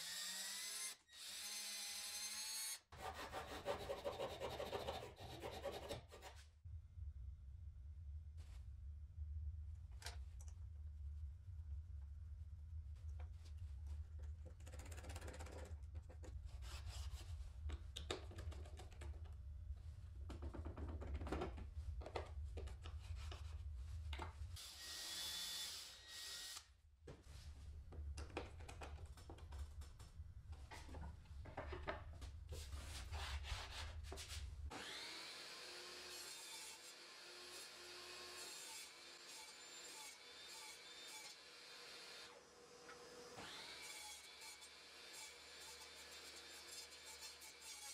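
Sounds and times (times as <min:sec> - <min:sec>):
knocks and scraping on wood: 0:20.2 - 0:24.4, 0:27.1 - 0:34.4.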